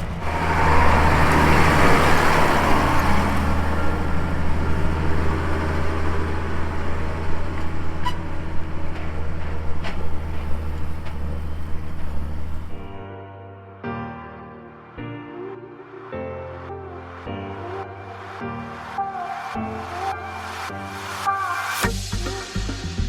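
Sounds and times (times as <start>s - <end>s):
farm vehicle engine droning: 0.0s - 13.0s.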